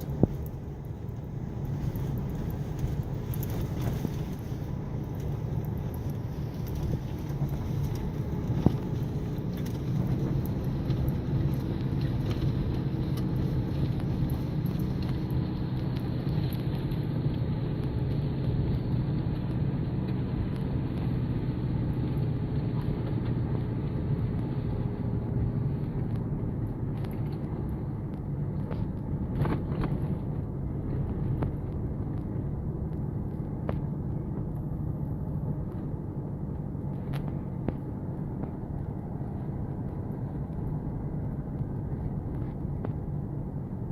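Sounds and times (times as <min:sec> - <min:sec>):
vehicle engine running: 0:00.0 - 0:43.9.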